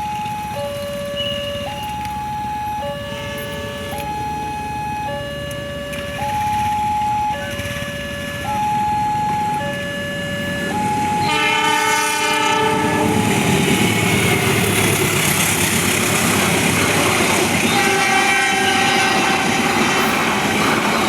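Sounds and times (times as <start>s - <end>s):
level crossing warning alarm: 0.0s - 21.0s
train rushing past: 7.4s - 21.0s
train horn: 11.2s - 13.6s, 17.6s - 20.8s.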